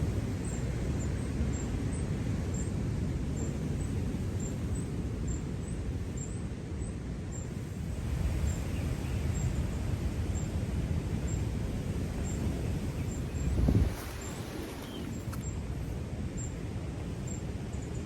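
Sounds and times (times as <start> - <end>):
wind buffeting microphone: 7.5 - 18.0
faint bird chirp: 12.2 - 15.6.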